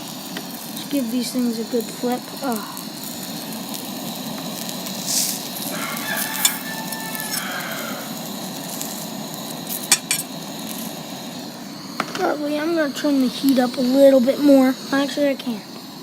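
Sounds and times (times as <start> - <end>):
chicken sizzling in a pan: 0.0 - 16.0
utensil clicking against pan: 9.7 - 10.3.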